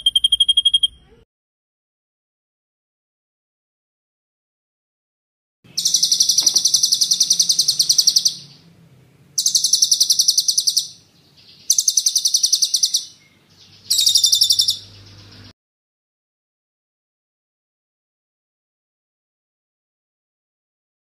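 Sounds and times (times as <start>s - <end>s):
songbird rapid trill: 5.7s - 8.7s, 9.4s - 15.5s.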